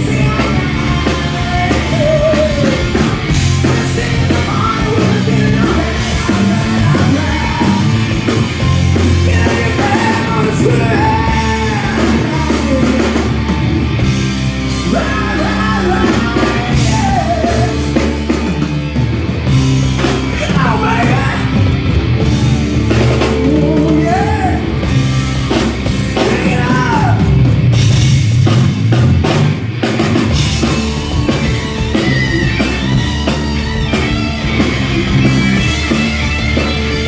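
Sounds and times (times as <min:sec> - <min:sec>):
singer belting vocals: 0:00.0 - 0:18.9, 0:20.0 - 0:27.8
live rock band: 0:00.0 - 0:37.0.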